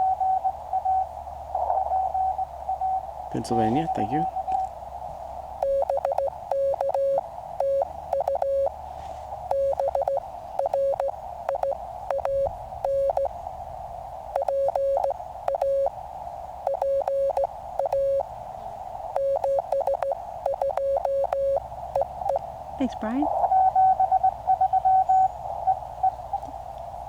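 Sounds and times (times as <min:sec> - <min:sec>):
morse code beeps: 0:00.0 - 0:01.1, 0:01.9 - 0:04.7, 0:05.6 - 0:08.8, 0:09.4 - 0:13.3, 0:14.4 - 0:15.9, 0:16.6 - 0:18.3, 0:19.2 - 0:26.2
radio band noise hiss: 0:00.0 - 0:27.0.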